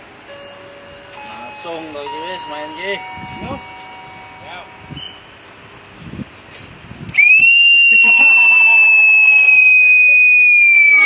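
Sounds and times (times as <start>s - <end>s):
long whistle blast: 7.1s - 11.0s.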